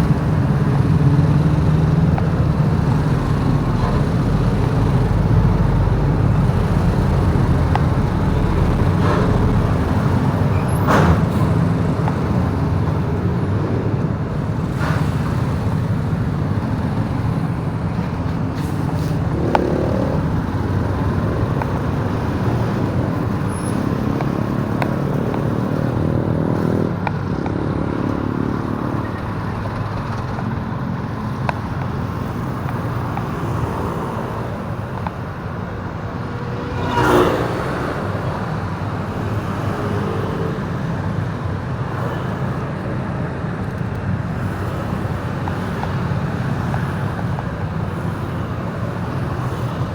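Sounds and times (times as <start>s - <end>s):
wind and road noise: 0.0s - 49.9s.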